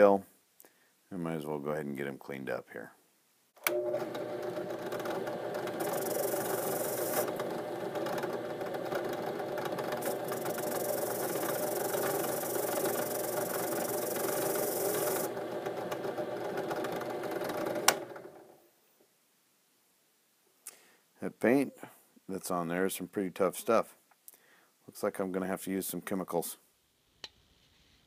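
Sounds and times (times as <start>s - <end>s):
drill press motor hum: 3.6s - 18.5s
wire brush scrubbing screw: 5.8s - 7.3s, 10.0s - 15.3s.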